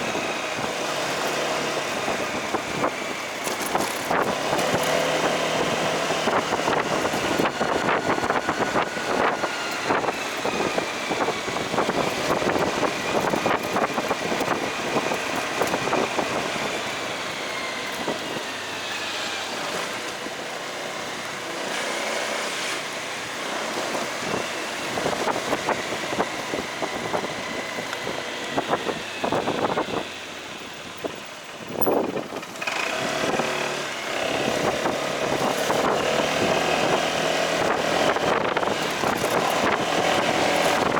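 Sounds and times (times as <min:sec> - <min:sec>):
motorcycle engine whine: 0:00.0 - 0:40.9
road and wind noise: 0:00.0 - 0:40.9.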